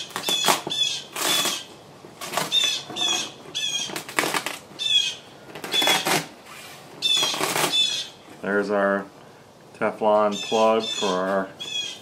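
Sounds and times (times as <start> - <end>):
plastic sheet crinkling: 0.0 - 4.7, 5.5 - 7.8
small bird chirping: 4.8 - 6.0, 7.0 - 8.2, 10.3 - 12.0.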